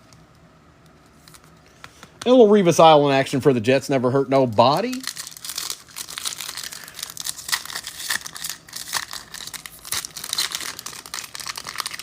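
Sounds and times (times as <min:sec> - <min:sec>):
foil wrappers crinkling: 0:04.4 - 0:12.0.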